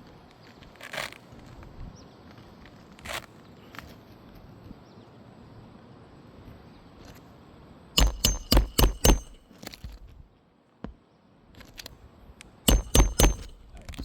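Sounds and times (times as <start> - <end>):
hammer driving nail: 8.0 - 9.4, 12.7 - 13.6
light hammer taps: 8.0 - 9.4, 12.7 - 13.6.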